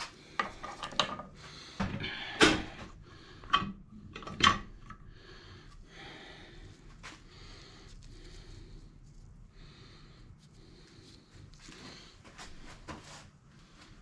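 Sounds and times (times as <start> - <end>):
quiet rubbing and shuffling: 4.8 - 14.0.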